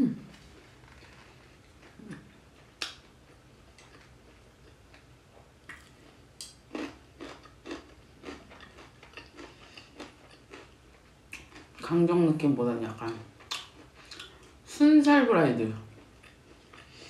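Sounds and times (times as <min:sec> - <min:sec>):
crunchy chewing: 0:00.6 - 0:11.8, 0:15.9 - 0:17.0.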